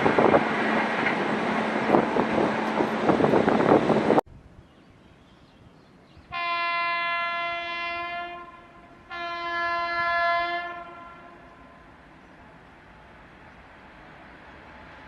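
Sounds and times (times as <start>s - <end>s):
long horn blasts: 6.3s - 11.8s.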